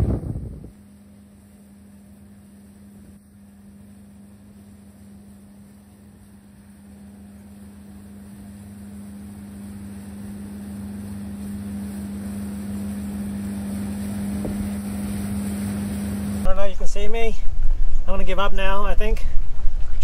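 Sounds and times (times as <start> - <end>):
boat motor running: 2.8 - 16.6.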